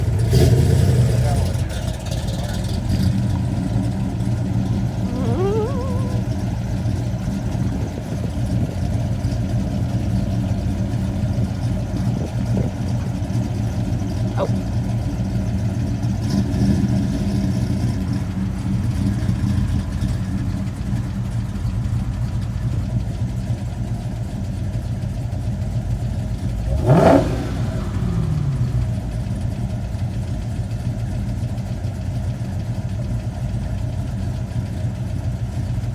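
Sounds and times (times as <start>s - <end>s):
car engines rumbling: 0.0s - 35.9s
engine rev: 26.5s - 30.0s.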